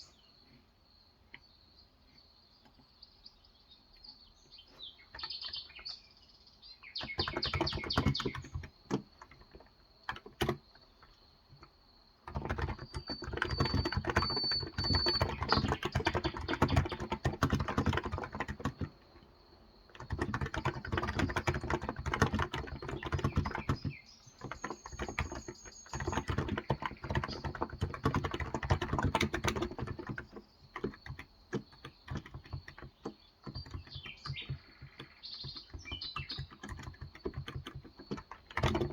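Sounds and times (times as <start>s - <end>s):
birds chirping: 0.0s - 38.9s
keyboard typing: 6.9s - 38.9s.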